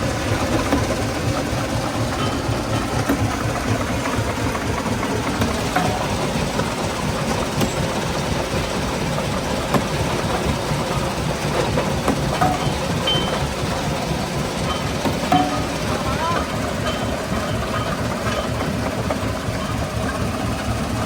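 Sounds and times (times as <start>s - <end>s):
stone-crushing machinery rumble: 0.0s - 21.0s
sharp knocks: 14.7s - 16.0s.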